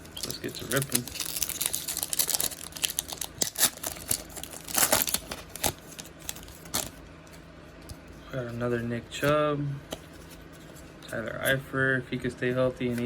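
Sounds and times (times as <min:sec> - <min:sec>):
plastic wrappers crinkling and tearing: 0:00.0 - 0:07.0.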